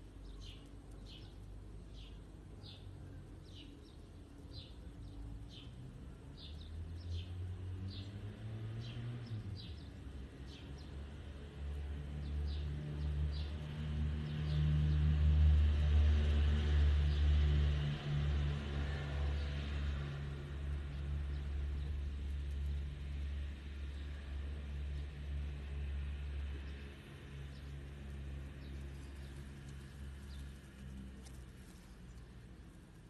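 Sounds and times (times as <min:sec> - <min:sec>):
small bird chirping: 0:00.2 - 0:05.8
low engine rumble: 0:09.0 - 0:33.0.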